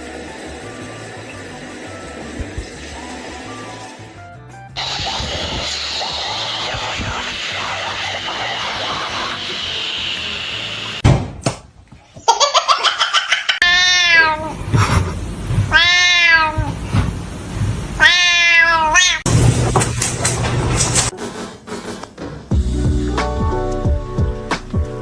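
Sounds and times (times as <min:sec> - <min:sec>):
cat meowing loudly: 0:13.6 - 0:14.6, 0:15.7 - 0:16.8, 0:18.0 - 0:19.3.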